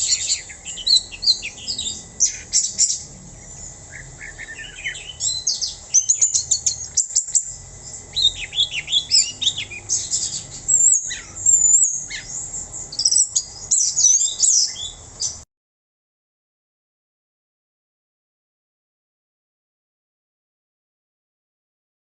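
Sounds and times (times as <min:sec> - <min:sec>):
thrush singing: 0:00.0 - 0:15.0.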